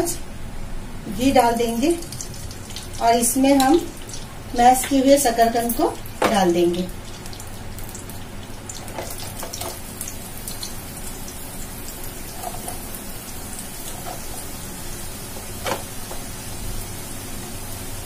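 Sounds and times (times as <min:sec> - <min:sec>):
ghee sizzling in a frying pan: 0:01.4 - 0:18.0.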